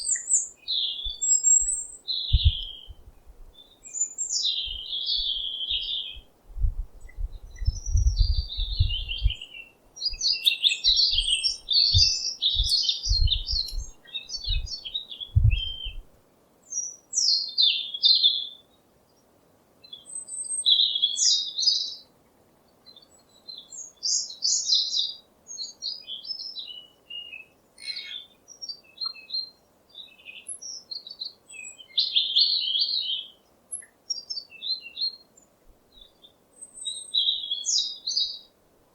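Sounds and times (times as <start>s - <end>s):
songbirds chirping and twittering: 0.0s - 38.9s
low dull thumps: 12.0s - 14.8s, 15.4s - 16.1s.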